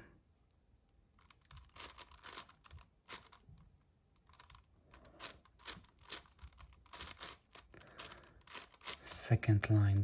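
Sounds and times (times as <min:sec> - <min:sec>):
puzzle cube clicking: 0:01.2 - 0:09.0.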